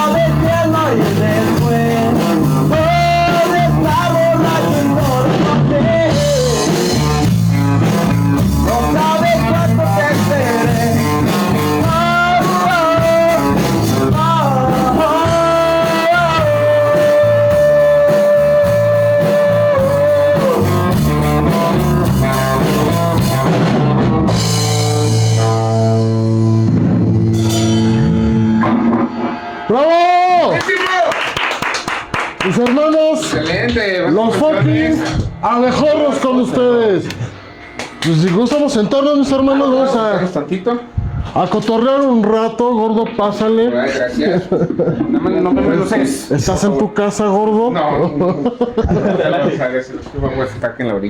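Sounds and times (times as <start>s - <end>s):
rock song with singing: 0.0s - 30.6s.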